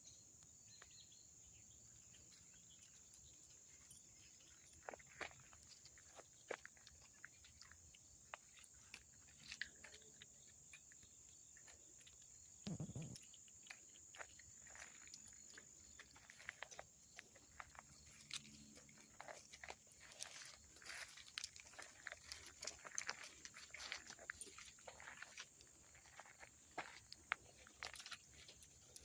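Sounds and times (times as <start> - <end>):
small clicks and crackles: 2.3 - 29.0.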